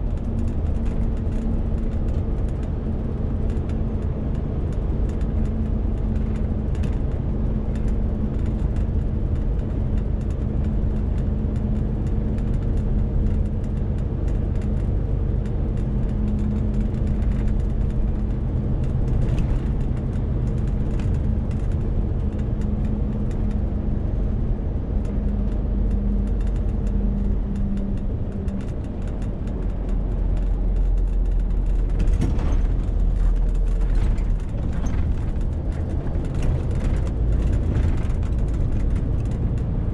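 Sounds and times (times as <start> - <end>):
mid-pitched tone in engine hum: 0.0 - 39.9
truck diesel engine drone: 12.0 - 39.9.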